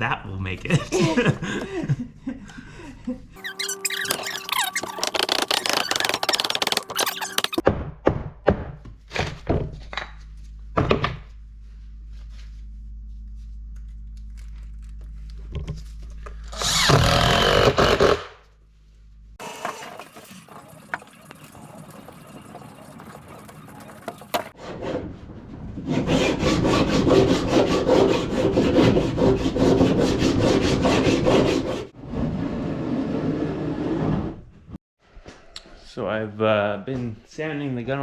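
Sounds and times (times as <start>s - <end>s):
rough rubbing on wood: 3.4s - 7.6s, 19.4s - 24.6s.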